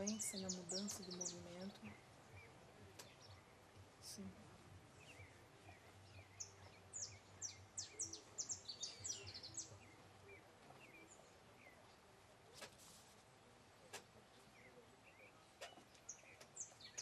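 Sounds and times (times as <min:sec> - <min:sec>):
small bird chirping: 0:04.9 - 0:12.0, 0:14.4 - 0:17.0.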